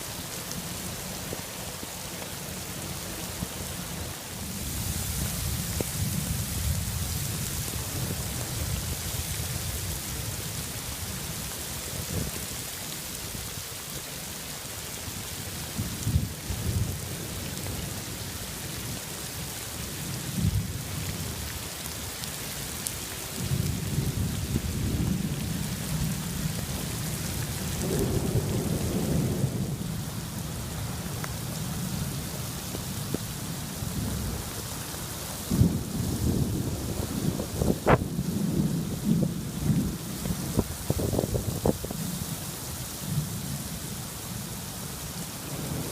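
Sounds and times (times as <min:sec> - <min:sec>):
heavy rain falling: 0:00.0 - 0:45.9
rolling thunder rumbling: 0:23.4 - 0:30.9, 0:35.5 - 0:41.8, 0:45.4 - 0:45.9.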